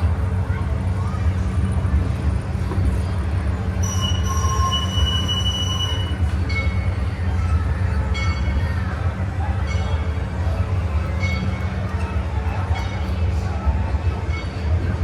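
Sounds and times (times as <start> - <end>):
train low rumble: 0.0 - 15.0
wheels squealing on rails: 0.0 - 15.0.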